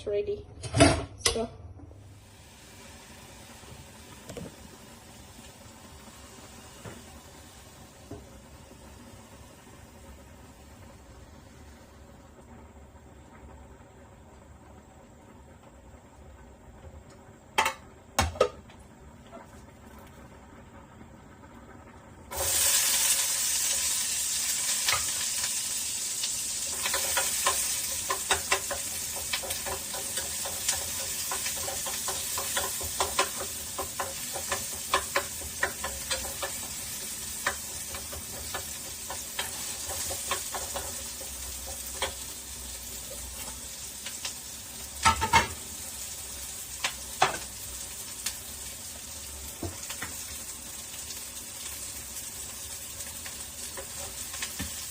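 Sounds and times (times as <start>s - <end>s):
food sizzling in oiled pan: 2.0s - 54.9s
spoon scraping pan: 26.8s - 42.3s.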